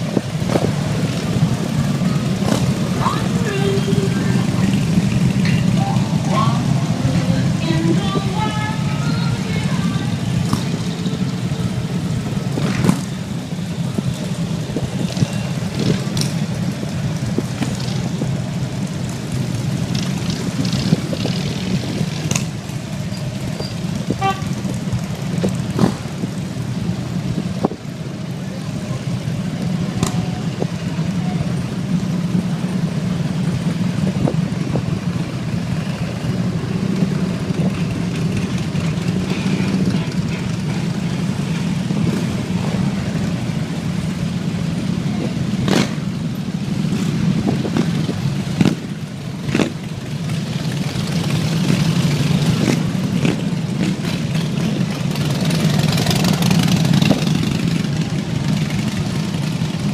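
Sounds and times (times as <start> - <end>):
motorcycles rumbling: 0.0 - 59.9
horn toot: 24.2 - 24.6.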